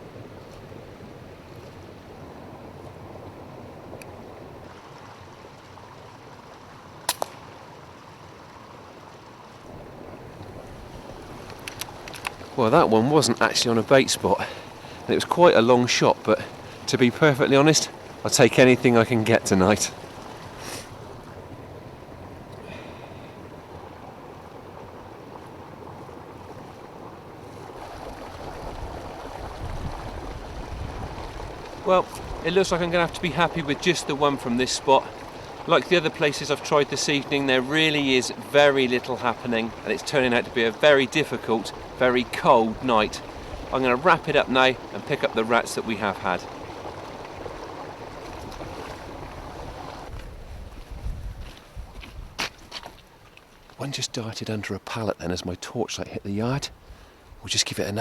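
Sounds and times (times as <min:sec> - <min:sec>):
air rifle shot cracks: 0:07.1 - 0:07.6
wind hiss on microphone: 0:09.7 - 0:52.9, 0:56.3 - 0:58.0.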